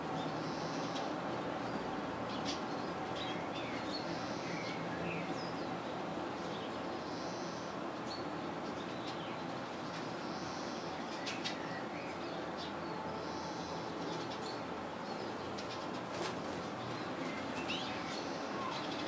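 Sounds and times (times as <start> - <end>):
steady background hiss: 0.0 - 19.0
songbird chirps: 0.1 - 19.0
wing flutters: 15.6 - 17.8.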